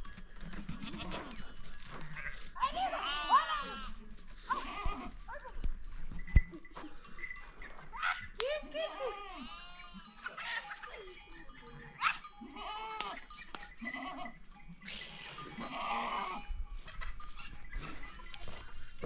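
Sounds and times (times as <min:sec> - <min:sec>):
goats bleating: 0:00.7 - 0:01.4, 0:02.0 - 0:05.2, 0:08.8 - 0:10.9, 0:12.2 - 0:16.5.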